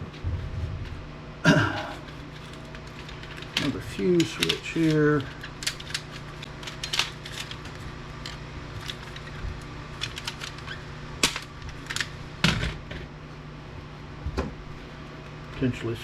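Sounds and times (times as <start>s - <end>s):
steady low hum: 0.0s - 16.0s
clicks and clatters of tools: 1.7s - 12.1s.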